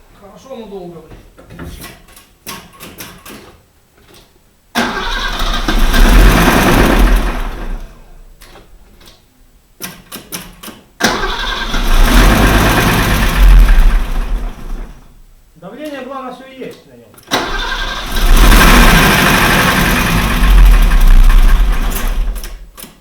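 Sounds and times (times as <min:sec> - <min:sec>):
car engine turning over: 0:04.8 - 0:08.4, 0:11.0 - 0:15.2, 0:17.3 - 0:22.7.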